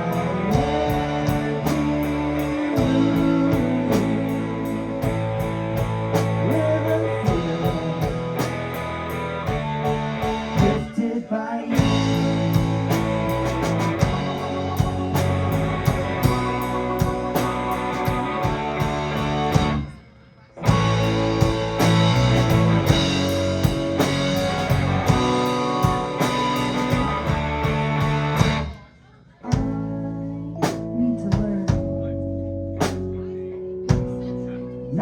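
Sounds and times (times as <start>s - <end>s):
live rock band playing: 0.0s - 28.9s.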